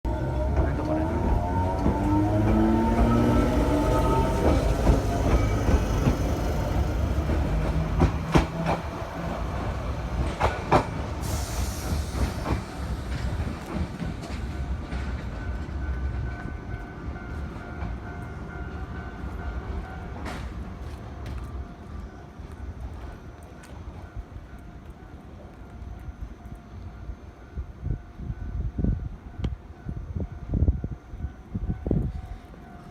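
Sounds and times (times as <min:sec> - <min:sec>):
electric train running past: 0:00.1 - 0:32.9.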